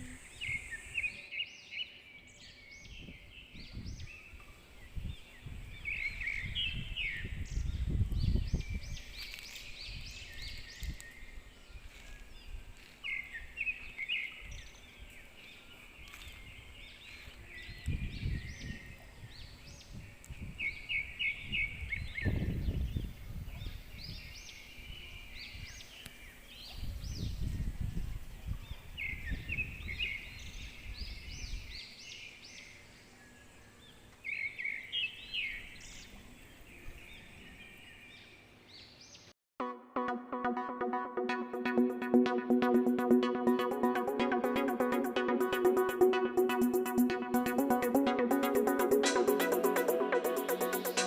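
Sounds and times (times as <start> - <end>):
wind buffeting microphone: 2.9 - 12.8, 17.6 - 25.8, 26.7 - 31.8.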